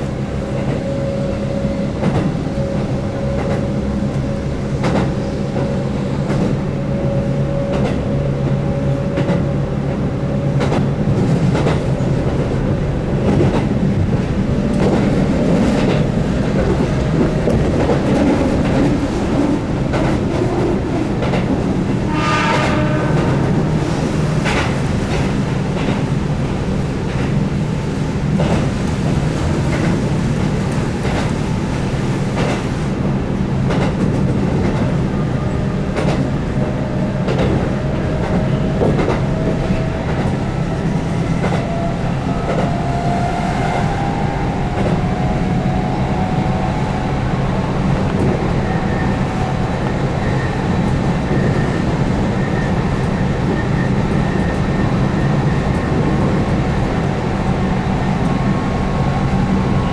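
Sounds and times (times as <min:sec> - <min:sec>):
train low rumble: 0:00.0 - 0:59.9.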